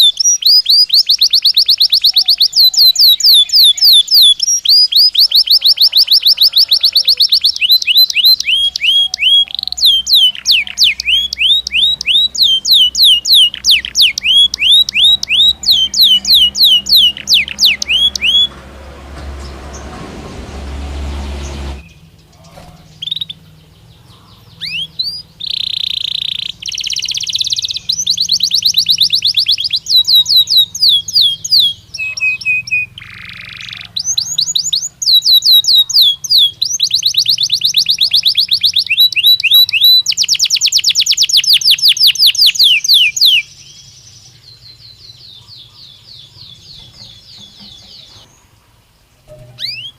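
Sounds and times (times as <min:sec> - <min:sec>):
canary singing in rapid trills: 0:00.0 - 0:49.9
noisy rumbling: 0:13.5 - 0:25.5.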